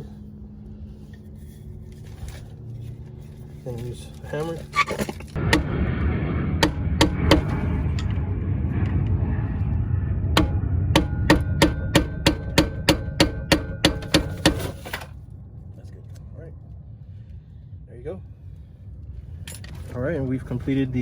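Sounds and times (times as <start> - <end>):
low rumble: 0.0 - 21.0
hammer striking screwdriver: 6.6 - 8.2, 10.4 - 15.0.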